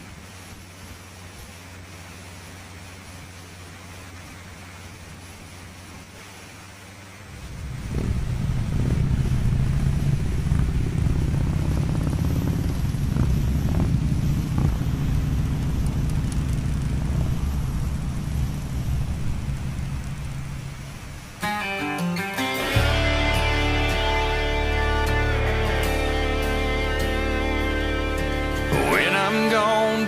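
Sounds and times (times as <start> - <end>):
motorcycle engine running: 7.3 - 21.4.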